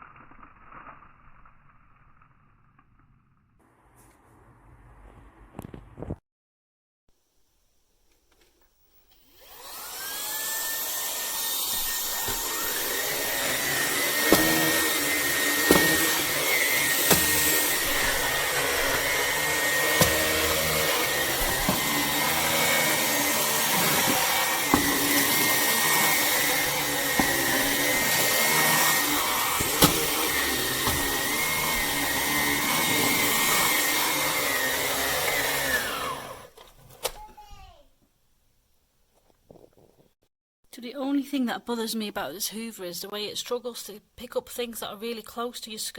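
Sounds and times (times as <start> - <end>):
vacuum cleaner motor whining: 9.0 - 36.6.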